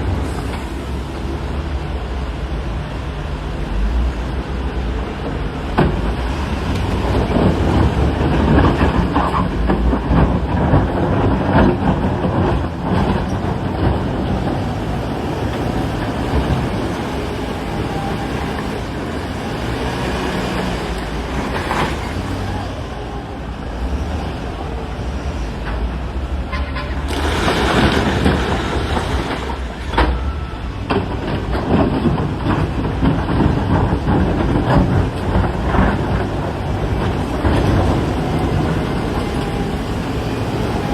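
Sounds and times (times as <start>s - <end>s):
heavy machinery diesel engine: 0.0s - 40.9s
knocks and clatter: 5.2s - 22.6s, 25.6s - 40.9s.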